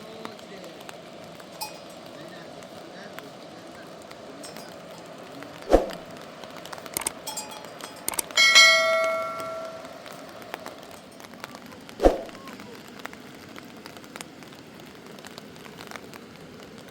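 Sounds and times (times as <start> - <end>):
metal object ringing: 1.6 - 2.0, 7.2 - 10.4.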